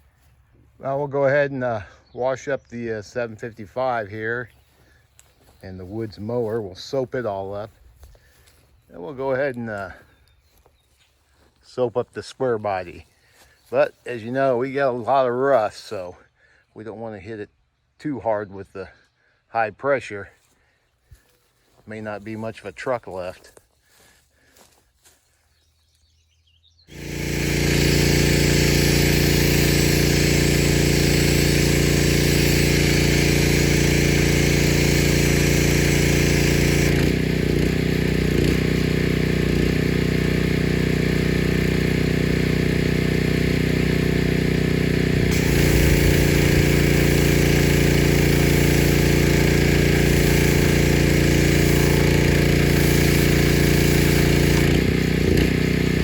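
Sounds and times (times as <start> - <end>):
pressure washer motor running: 26.9 - 56.0
spray hissing: 26.9 - 56.0.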